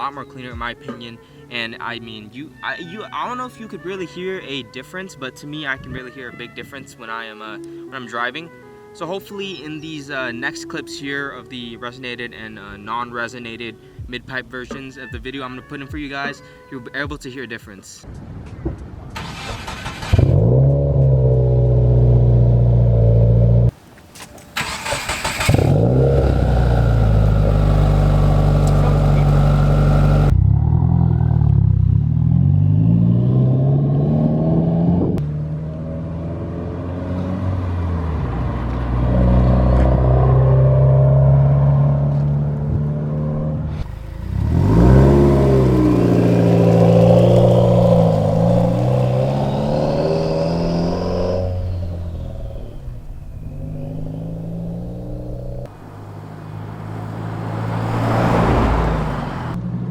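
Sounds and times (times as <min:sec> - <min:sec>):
car engine exhaust revving: 0:20.1 - 0:23.8, 0:24.5 - 0:59.6.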